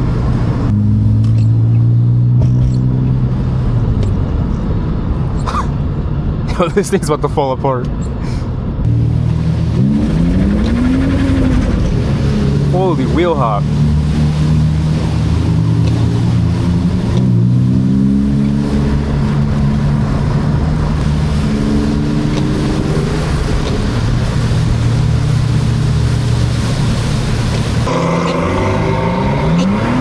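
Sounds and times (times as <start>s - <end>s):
car engine revving: 0.0s - 4.0s, 8.8s - 30.0s
tyres hissing on wet road: 8.9s - 30.0s.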